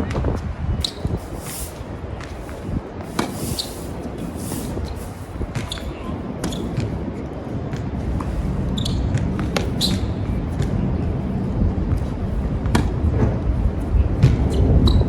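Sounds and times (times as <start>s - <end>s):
wind buffeting microphone: 0.0s - 15.0s
tennis balls struck by rackets: 0.9s - 10.8s, 11.9s - 13.3s, 14.2s - 14.7s.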